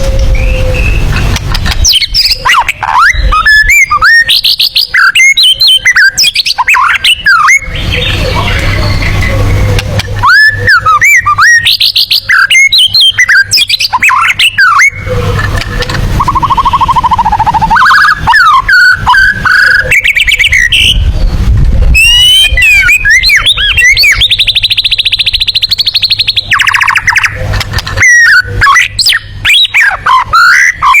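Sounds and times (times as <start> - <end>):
songbird whistles and trills: 0.0 - 31.0.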